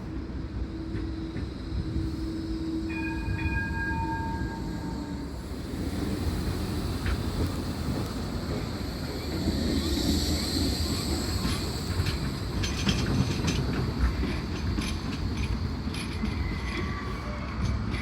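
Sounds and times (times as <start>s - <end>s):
tram rumbling on track: 0.0s - 18.0s
wheels clicking on rails: 6.0s - 18.0s.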